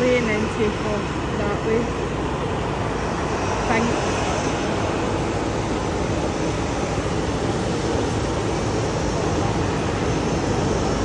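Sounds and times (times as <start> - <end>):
aircraft rumble and hiss: 0.0 - 11.0.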